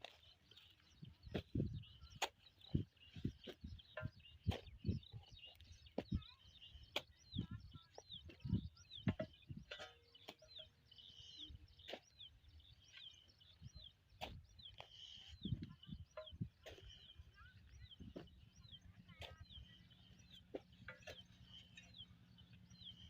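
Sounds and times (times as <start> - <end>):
birds chirping: 0.0 - 23.0
knocks and low thumps: 7.3 - 9.8.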